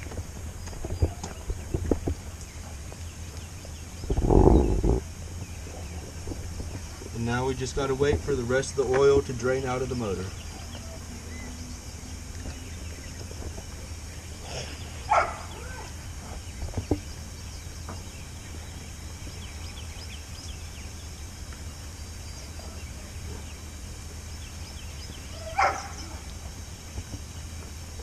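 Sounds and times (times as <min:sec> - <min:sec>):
steady low hum: 0:00.0 - 0:28.0
dog barking: 0:15.1 - 0:15.9, 0:25.4 - 0:26.2.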